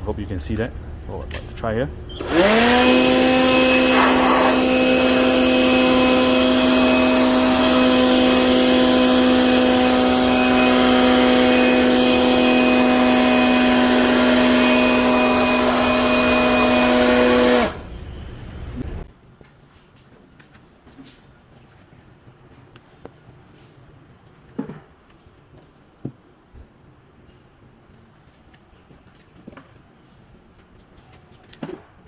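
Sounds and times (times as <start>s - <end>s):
leaf blower whining: 2.1s - 18.0s.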